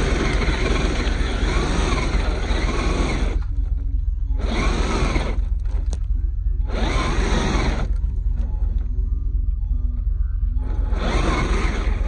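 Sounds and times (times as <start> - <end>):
toy truck electric motor revving: 0.0 - 6.0, 6.6 - 8.1, 10.6 - 12.0
steady low rumble: 0.0 - 12.0.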